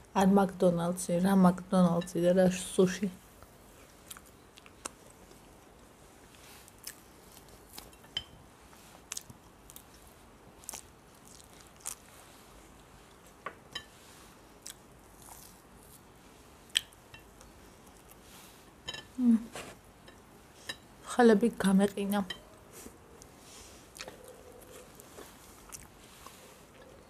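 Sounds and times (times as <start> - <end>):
person chewing fried chicken: 3.8 - 8.2, 8.9 - 13.3, 14.4 - 18.2, 23.1 - 27.0.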